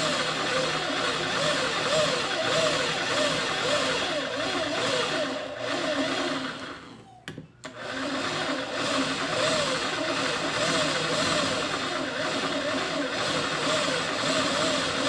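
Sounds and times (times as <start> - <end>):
small electric motor running: 7.9 - 15.0.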